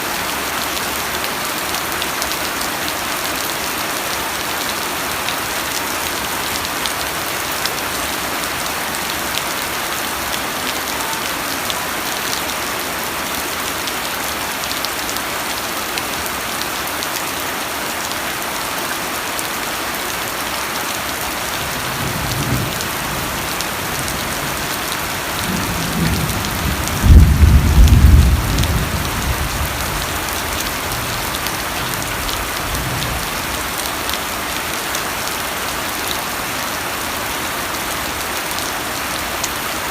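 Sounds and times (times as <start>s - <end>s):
steady rain: 0.0s - 39.9s
thunder rumbling: 25.4s - 30.2s.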